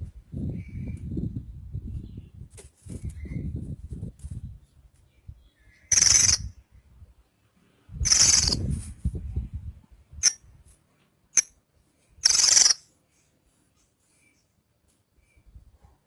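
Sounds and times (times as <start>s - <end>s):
bird chirps: 5.1s - 6.6s, 8.0s - 8.6s, 12.2s - 12.9s
bird singing: 5.1s - 6.8s, 8.0s - 8.6s, 12.2s - 12.8s.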